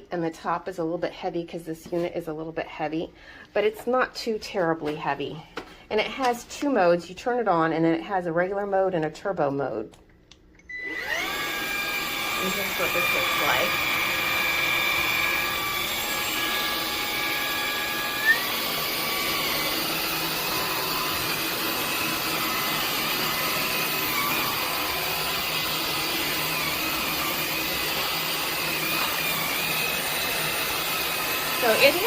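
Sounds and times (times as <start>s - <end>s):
stick vacuum motor whine: 10.6s - 32.0s.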